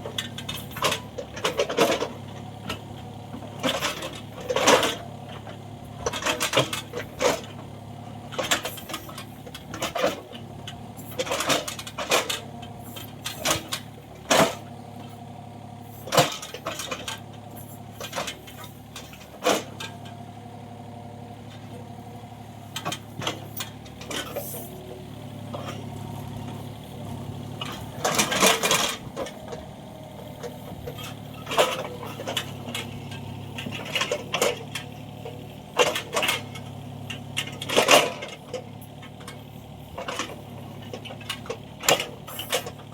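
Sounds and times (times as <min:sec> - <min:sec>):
excavator engine running: 0:00.0 - 0:42.9
metallic clanks and knocks: 0:08.3 - 0:14.7, 0:22.7 - 0:42.9.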